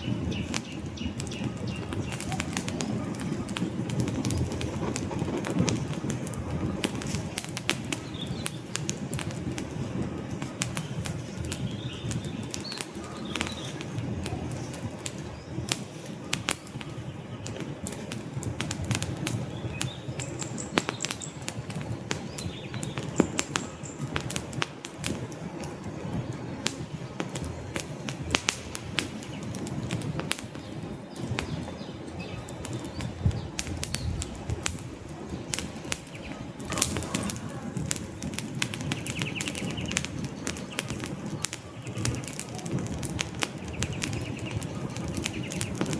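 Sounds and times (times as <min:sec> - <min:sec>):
logs crackling and popping: 0:00.0 - 0:45.9
wood fire burning: 0:00.0 - 0:45.9.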